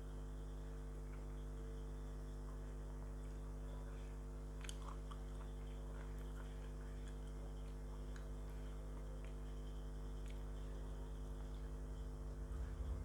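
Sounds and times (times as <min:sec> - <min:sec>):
low electrical hum: 0:00.0 - 0:13.0
crunchy chewing: 0:04.5 - 0:10.9.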